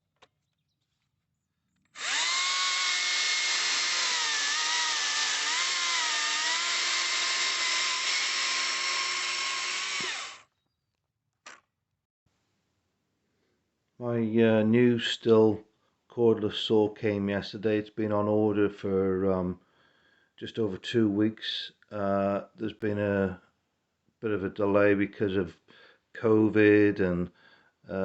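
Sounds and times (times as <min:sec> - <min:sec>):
cordless chainsaw motor whining: 0:01.9 - 0:10.5.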